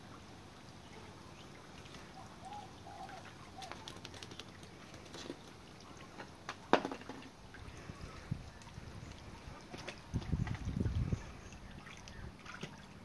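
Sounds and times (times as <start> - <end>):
faint bird calls: 0.8 - 6.3.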